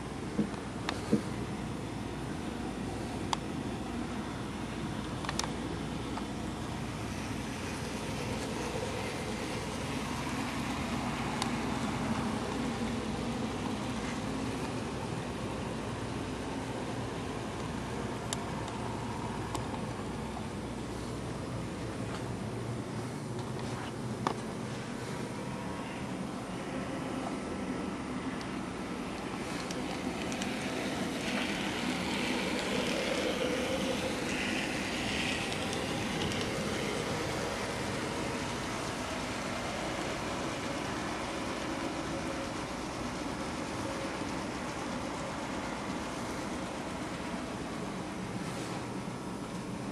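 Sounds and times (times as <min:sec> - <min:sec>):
model train whirring: 0:00.0 - 0:49.9
wheels clicking over rail joints: 0:28.4 - 0:49.9.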